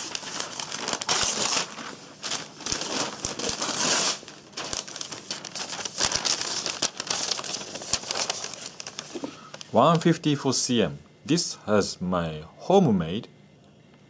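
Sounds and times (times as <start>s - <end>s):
knife slicing newspaper: 0.0s - 8.6s.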